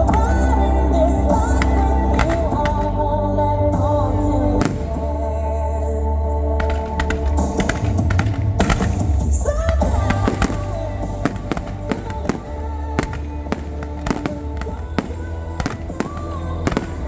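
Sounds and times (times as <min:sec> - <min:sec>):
fireworks bangs and cracks: 0:01.2 - 0:03.0, 0:04.6 - 0:05.5, 0:06.6 - 0:17.0.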